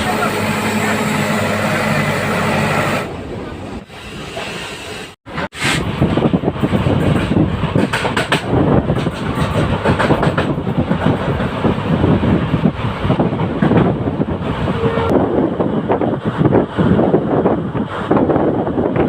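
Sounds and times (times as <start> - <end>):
train coach rattling: 5.3 - 19.0
train wheels clattering over rails: 5.6 - 14.2.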